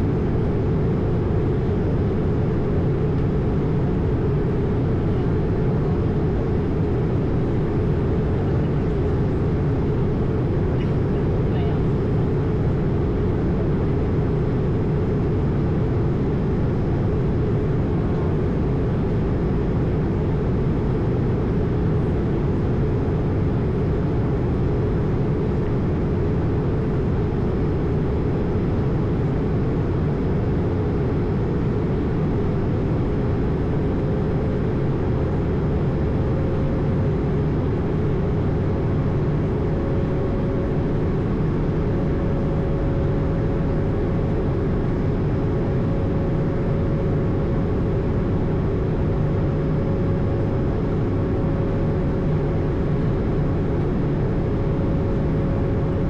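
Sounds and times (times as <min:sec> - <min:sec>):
aircraft cabin engine and airflow: 0:00.0 - 0:56.0.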